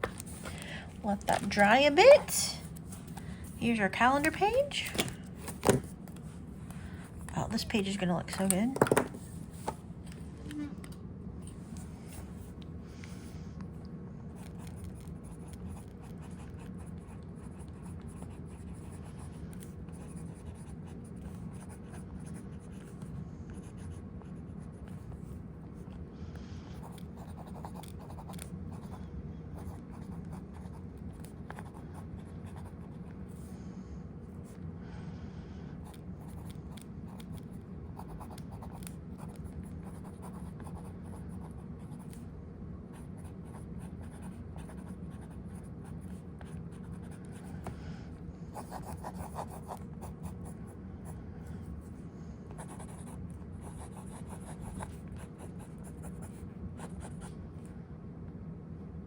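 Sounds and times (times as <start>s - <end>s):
low background hum: 0.0s - 59.0s
pen nib scratching paper: 14.4s - 25.2s, 26.8s - 29.0s, 35.8s - 42.2s, 48.5s - 50.6s, 52.6s - 57.3s.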